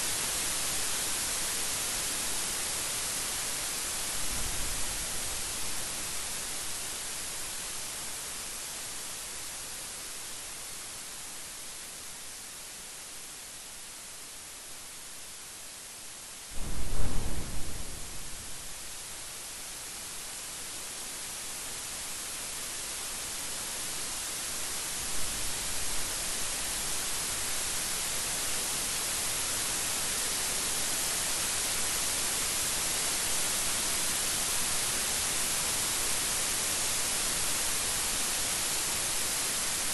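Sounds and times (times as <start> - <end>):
steady rain hissing: 0.0 - 39.9
thunder rumbling: 16.6 - 19.0.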